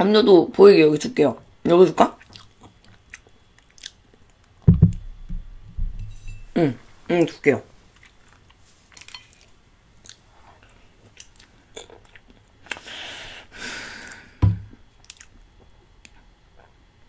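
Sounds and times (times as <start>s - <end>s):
chewing with wet mouth clicks: 2.2s - 4.6s, 8.0s - 10.2s, 11.2s - 12.8s, 15.0s - 16.8s
sharp thump: 4.7s - 6.0s, 14.4s - 14.7s.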